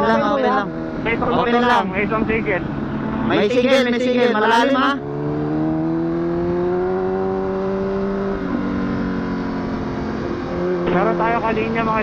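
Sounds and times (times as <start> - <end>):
motorcycle engine under throttle: 5.0 - 12.0.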